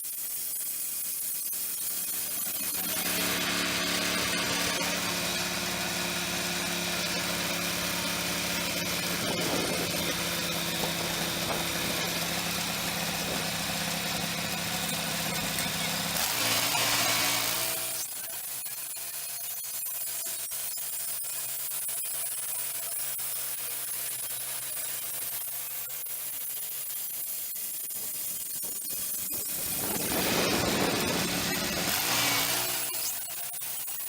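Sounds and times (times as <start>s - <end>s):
band sawmill engine running: 0.8s - 18.2s, 27.9s - 33.8s.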